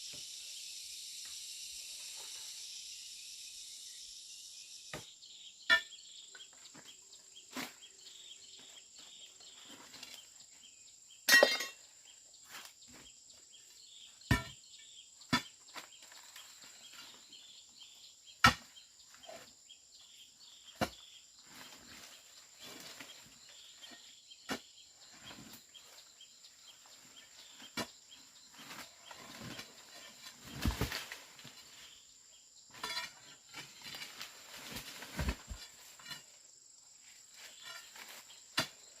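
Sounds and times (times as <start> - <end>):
high-pitched insect drone: 0.0 - 4.9.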